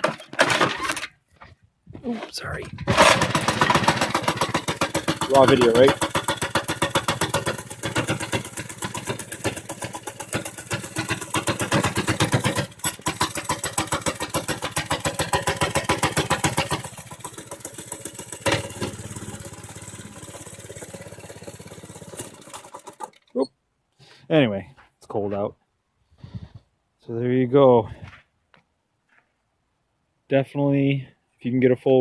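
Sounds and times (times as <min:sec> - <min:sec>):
small engine idling: 0:02.9 - 0:23.3.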